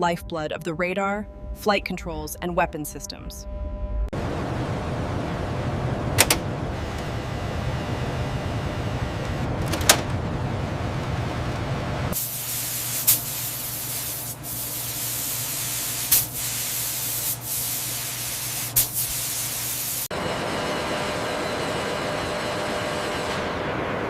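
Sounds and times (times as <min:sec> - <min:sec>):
rumbling machine noise: 0:00.0 - 0:12.3
high spray hiss: 0:12.2 - 0:20.1.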